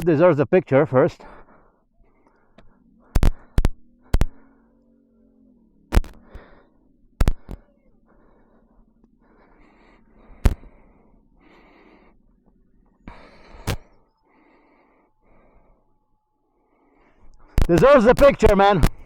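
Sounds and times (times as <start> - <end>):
person breathing hard: 1.2 - 17.6
sharp clicks or knocks: 3.1 - 4.4, 5.9 - 6.3, 7.2 - 7.6.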